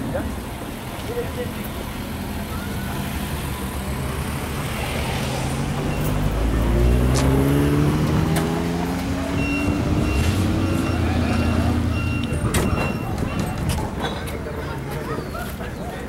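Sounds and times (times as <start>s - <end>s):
car engine revving up: 3.0s - 12.6s.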